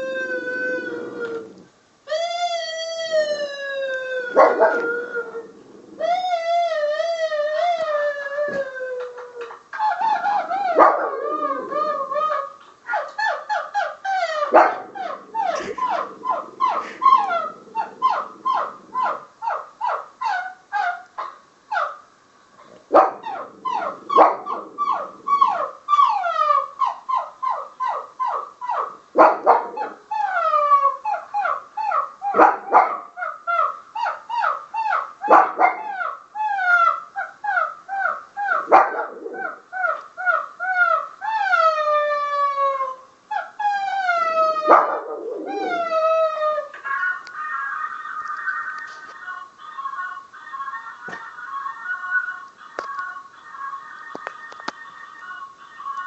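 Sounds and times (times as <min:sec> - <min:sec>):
dog whining: 0:00.0 - 0:21.1, 0:22.6 - 0:47.3
dog yipping: 0:04.3 - 0:04.9, 0:09.9 - 0:22.0, 0:22.9 - 0:41.7, 0:43.4 - 0:46.7.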